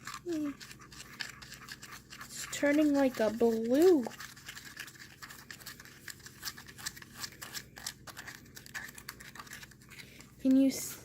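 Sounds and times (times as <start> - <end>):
spoon scraping paste in a cup: 0.0 - 10.9.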